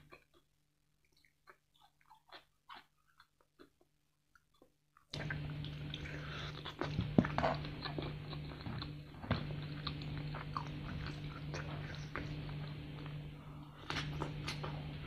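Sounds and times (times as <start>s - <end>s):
crunchy chewing: 0.0s - 15.0s
steady low hum: 5.1s - 15.0s.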